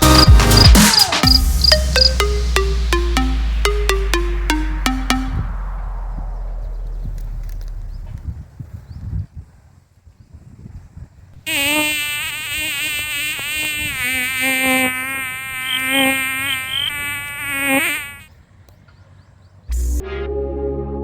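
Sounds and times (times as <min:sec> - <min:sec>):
loud even buzzing: 0:11.5 - 0:18.3.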